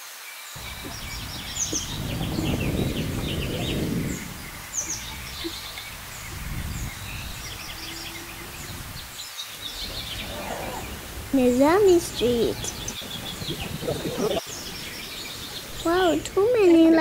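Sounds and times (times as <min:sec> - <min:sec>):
low rumble: 0:00.6 - 0:16.6
birds chirping: 0:00.6 - 0:17.0.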